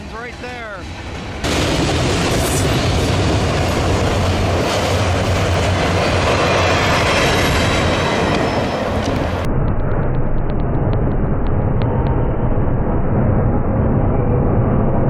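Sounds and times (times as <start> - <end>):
freight train rumbling past: 0.0 - 9.5.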